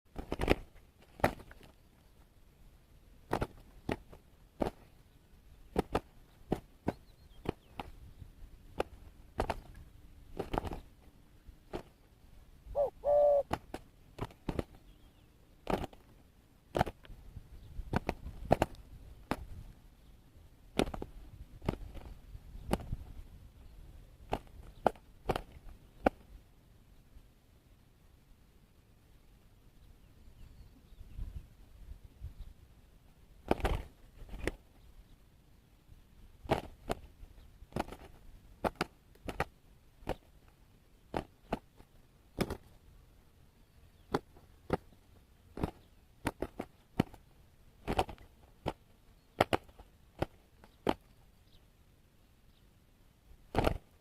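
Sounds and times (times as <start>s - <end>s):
wing slaps and scuffles: 0.1s - 1.8s, 3.3s - 4.9s, 5.7s - 8.0s, 8.8s - 10.9s, 13.5s - 14.8s, 15.6s - 16.1s, 16.7s - 17.0s, 17.9s - 19.5s, 20.8s - 23.0s, 24.3s - 26.3s, 33.5s - 34.7s, 36.4s - 37.1s, 37.7s - 40.3s, 41.1s - 42.8s, 45.5s - 47.2s, 47.8s - 48.8s, 49.4s - 51.1s, 53.5s - 54.0s
dove cooing: 12.7s - 13.6s.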